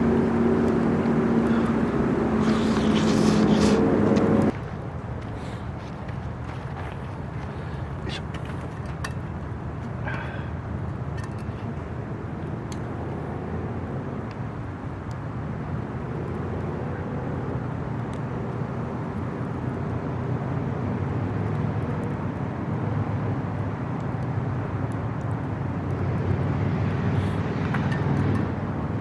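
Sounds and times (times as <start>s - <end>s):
fire crackles: 0.0s - 4.6s
fire low rumble: 0.0s - 4.6s.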